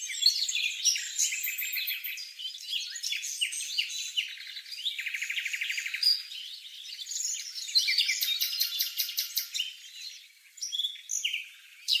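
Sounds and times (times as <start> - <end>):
bird trill of ticking notes: 7.9 - 9.8.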